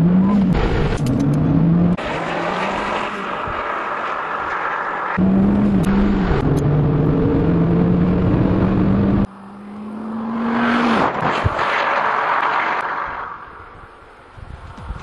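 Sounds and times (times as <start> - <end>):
car engine from inside cabin: 5.2 - 10.3.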